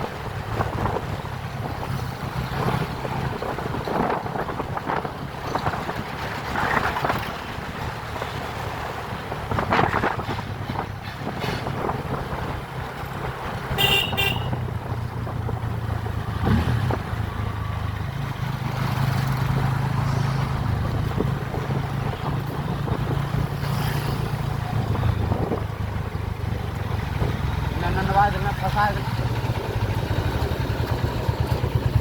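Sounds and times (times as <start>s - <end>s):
wind noise: 0.0s - 27.5s
motorcycle engine running: 13.1s - 32.0s
vehicle horn toot: 13.7s - 14.7s.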